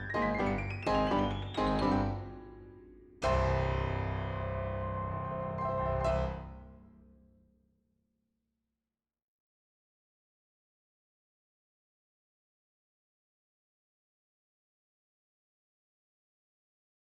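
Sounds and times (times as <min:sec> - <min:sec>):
piano chords: 0:00.0 - 0:06.9.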